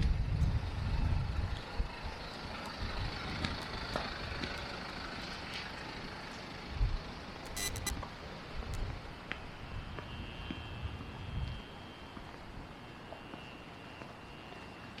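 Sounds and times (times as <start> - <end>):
low traffic rumble: 0.0 - 13.1
sharp clicks: 7.5 - 8.0.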